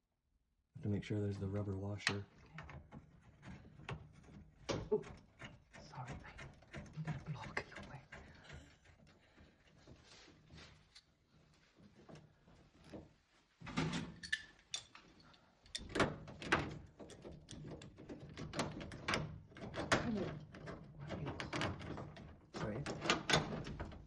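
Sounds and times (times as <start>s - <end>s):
tools and parts clattering: 13.6s - 24.0s.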